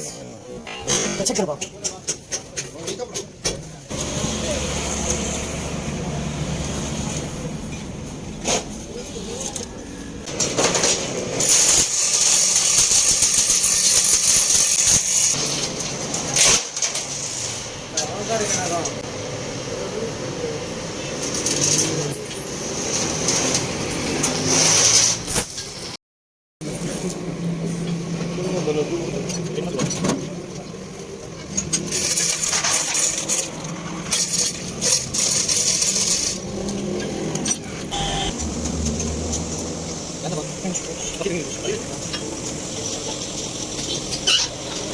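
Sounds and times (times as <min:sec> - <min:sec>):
harsh metallic scraping: 0:31.4 - 0:44.9.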